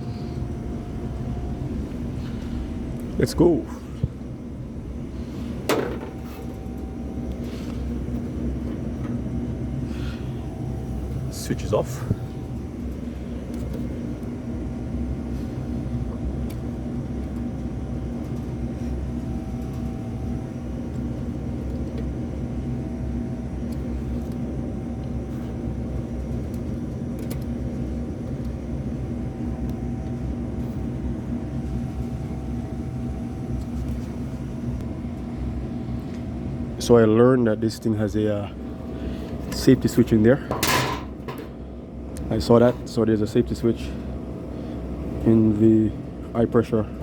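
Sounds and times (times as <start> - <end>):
machine hum and rumble: 0.0 - 47.0.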